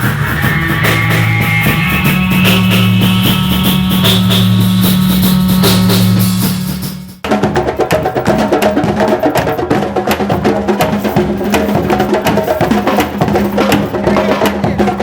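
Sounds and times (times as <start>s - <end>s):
steady low drone: 0.0s - 7.2s
drums in fast rhythm: 0.0s - 15.0s.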